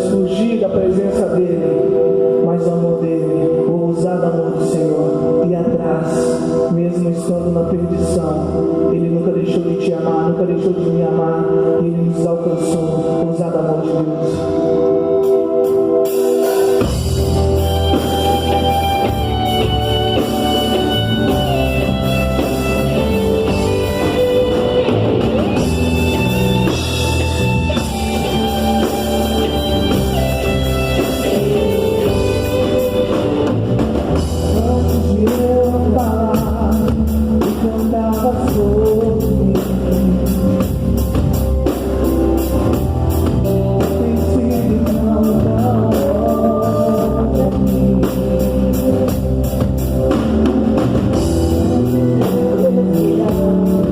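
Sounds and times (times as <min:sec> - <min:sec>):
guitar: 0:00.0 - 0:53.9
live band playing: 0:00.0 - 0:53.9
person singing: 0:00.0 - 0:53.9
drum kit: 0:12.5 - 0:53.9.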